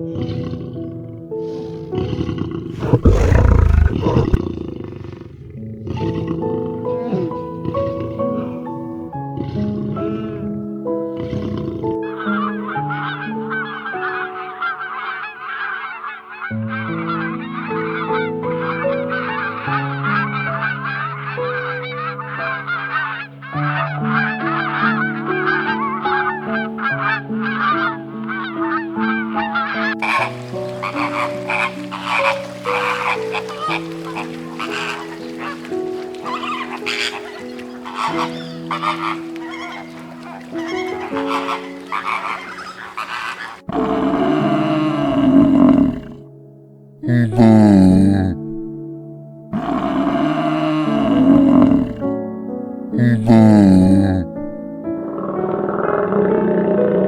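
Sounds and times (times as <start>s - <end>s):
chorus of birds calling: 0.0s - 4.4s, 5.2s - 46.2s, 49.6s - 52.3s, 54.8s - 57.0s
large animal roaring: 0.0s - 8.6s, 30.0s - 46.3s, 49.5s - 52.1s, 55.0s - 57.0s
background music with sustained notes: 0.0s - 57.0s.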